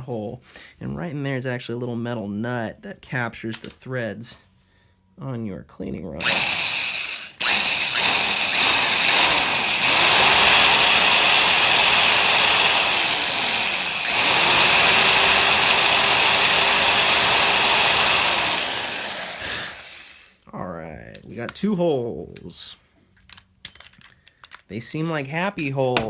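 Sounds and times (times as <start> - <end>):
electric drill boring wood: 6.2 - 20.4.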